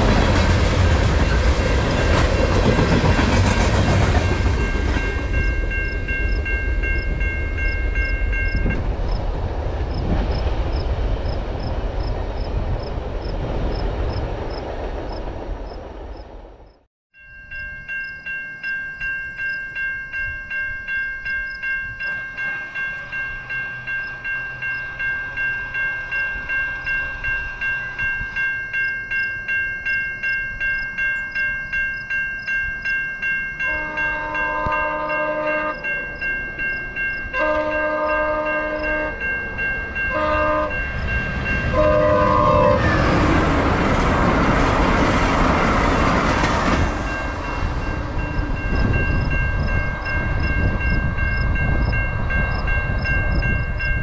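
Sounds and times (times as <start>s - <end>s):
train passing with rushing wheels: 0.0s - 16.9s, 17.5s - 54.0s
level crossing bells ringing: 0.9s - 8.8s, 17.2s - 46.3s, 47.0s - 54.0s
train horn: 33.6s - 36.2s, 37.3s - 39.4s, 40.0s - 43.4s.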